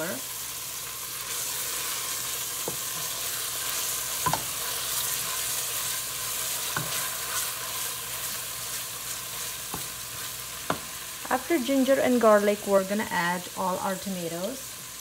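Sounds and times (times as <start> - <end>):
onions sizzling in oil: 0.0 - 15.0
wooden spoon stirring: 2.6 - 10.9.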